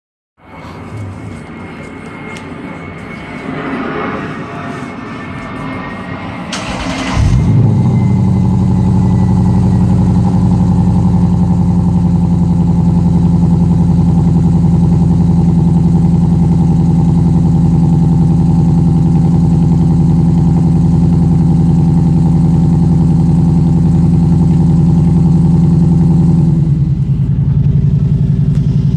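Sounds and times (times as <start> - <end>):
engine cranking: 6.5 - 11.0
loud engine idling: 6.5 - 28.9.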